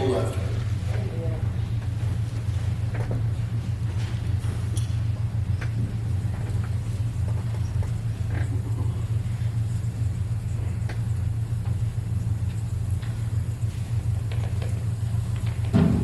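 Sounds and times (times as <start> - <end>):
steady low rumble: 0.0 - 16.0
faint clicks and knocks: 14.2 - 15.8.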